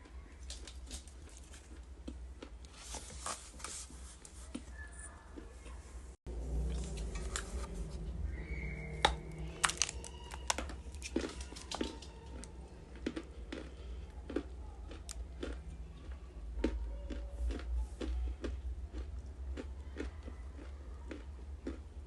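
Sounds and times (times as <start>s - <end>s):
low hum: 4.7s - 16.3s
crunching dry clay pieces: 8.5s - 15.7s.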